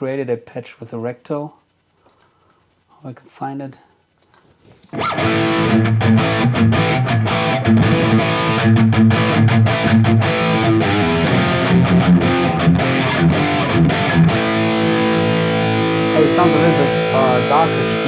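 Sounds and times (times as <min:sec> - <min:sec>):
distorted electric guitar riff: 0:04.9 - 0:18.0.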